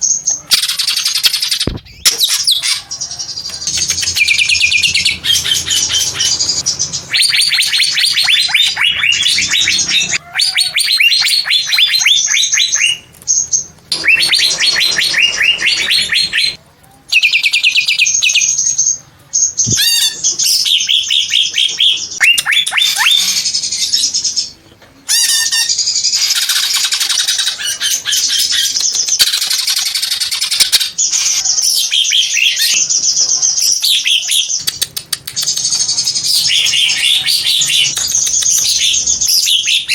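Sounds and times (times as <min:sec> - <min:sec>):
bird singing chattering trills: 0:00.0 - 0:16.6, 0:25.7 - 0:39.9.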